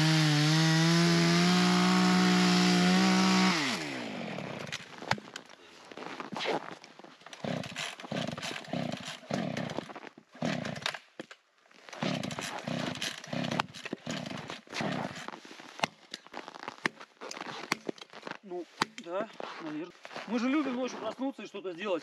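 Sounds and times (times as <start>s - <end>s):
hand saw rasping through wood: 0.0s - 4.6s, 7.4s - 9.8s, 10.4s - 10.9s, 12.0s - 15.3s.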